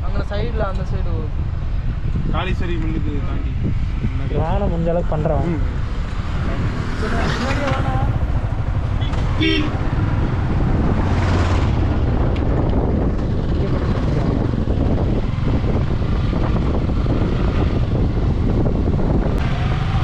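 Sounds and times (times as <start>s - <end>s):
wind rushing over microphone: 0.0s - 20.0s
motorcycle engine running: 6.3s - 20.0s.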